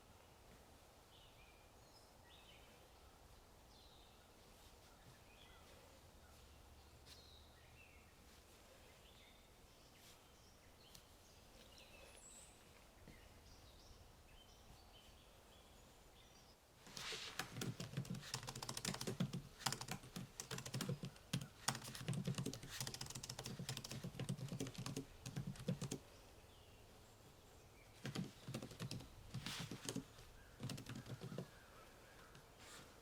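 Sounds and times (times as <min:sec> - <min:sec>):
typing on computer keyboard: 0:17.4 - 0:26.0, 0:28.0 - 0:30.0, 0:30.6 - 0:31.5.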